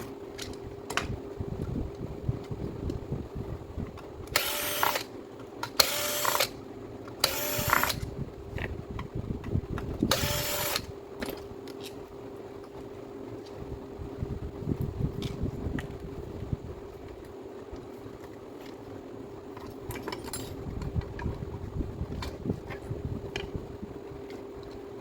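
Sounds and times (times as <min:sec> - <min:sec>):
steady hum: 0:00.0 - 0:25.0
handheld power tool bursts: 0:04.3 - 0:06.6, 0:07.2 - 0:08.0, 0:10.1 - 0:10.9.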